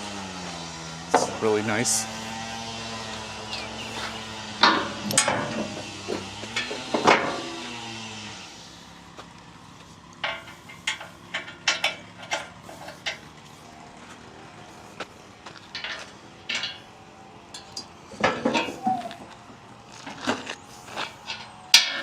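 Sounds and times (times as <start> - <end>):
metal clanks: 1.1 - 1.5, 3.1 - 7.8, 10.2 - 13.4, 15.6 - 19.4, 21.2 - 22.0.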